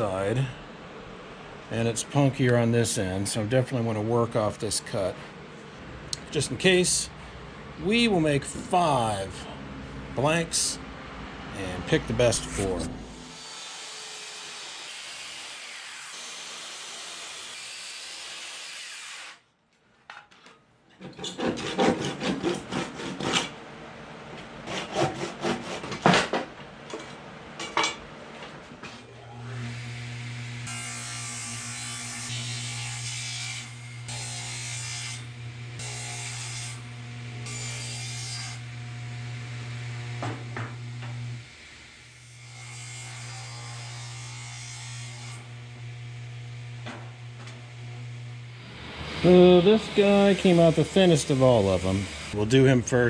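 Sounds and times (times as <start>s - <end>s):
saw cutting wood: 11.6s - 19.4s, 21.0s - 23.6s, 24.6s - 26.2s, 29.1s - 52.5s
woodworking machine motor humming: 44.0s - 52.4s.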